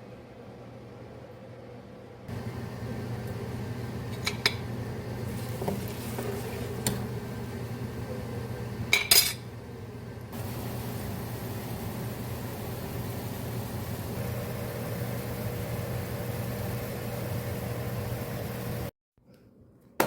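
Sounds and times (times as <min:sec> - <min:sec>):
utensils clinking against dishes: 0:04.1 - 0:04.7, 0:08.9 - 0:09.5.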